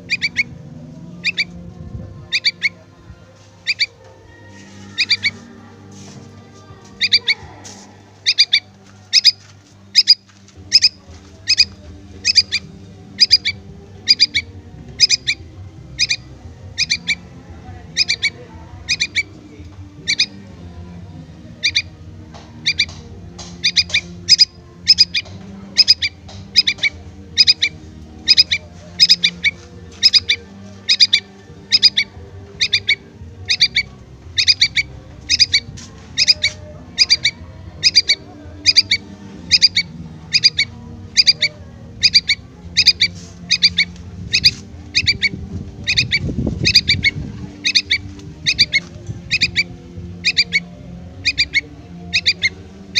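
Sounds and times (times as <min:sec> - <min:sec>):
fledgling bird begging calls: 0:00.0 - 0:00.6, 0:01.2 - 0:01.6, 0:02.3 - 0:02.7, 0:03.6 - 0:04.0, 0:04.7 - 0:05.5, 0:07.0 - 0:07.4, 0:08.2 - 0:15.4, 0:16.0 - 0:17.2, 0:17.9 - 0:19.4, 0:20.0 - 0:20.4, 0:21.6 - 0:21.9, 0:22.6 - 0:50.6, 0:51.2 - 0:52.9.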